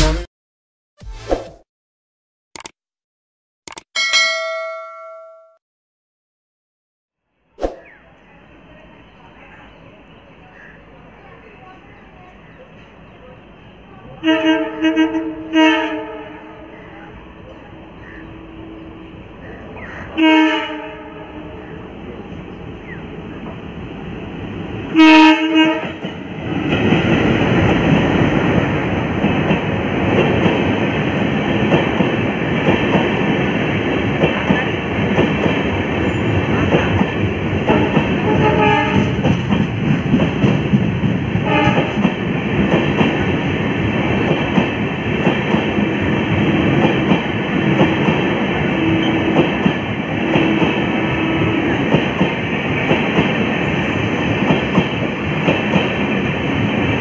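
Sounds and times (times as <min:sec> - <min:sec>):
train coaches rumbling: 0:08.1 - 0:57.0
train horn blasts: 0:14.2 - 0:16.6, 0:20.2 - 0:21.6, 0:25.0 - 0:26.0, 0:37.7 - 0:39.2, 0:41.4 - 0:42.0.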